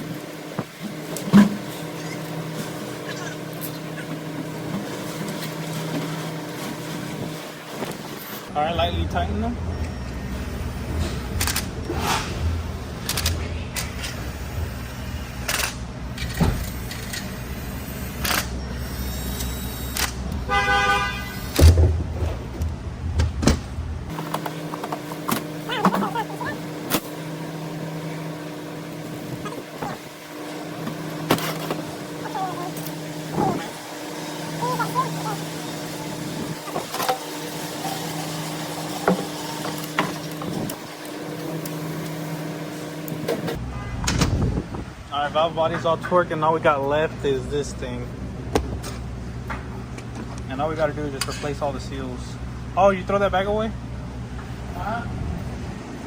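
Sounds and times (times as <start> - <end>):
steady hum: 0.0 - 43.7
horn-like tone: 20.4 - 21.6, 43.6 - 44.1.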